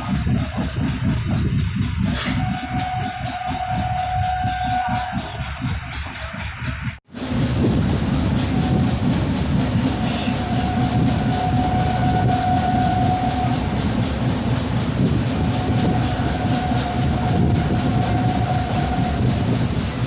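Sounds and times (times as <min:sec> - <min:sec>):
train wheels rumbling on rails: 0:00.0 - 0:20.0
thin steady whine: 0:07.6 - 0:20.0.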